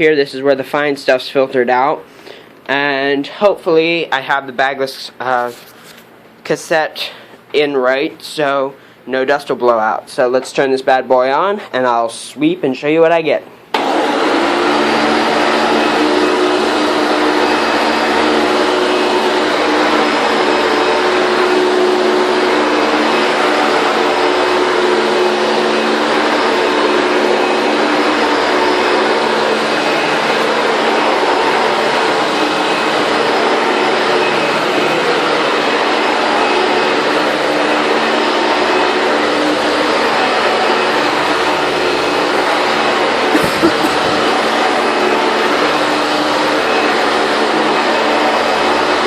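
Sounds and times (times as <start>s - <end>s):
vacuum cleaner running on carpet: 13.8s - 49.0s.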